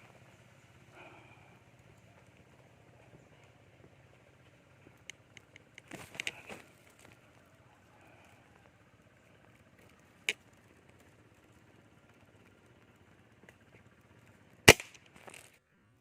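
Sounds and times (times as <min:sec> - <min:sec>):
air rifle shot: 0:14.7 - 0:15.1.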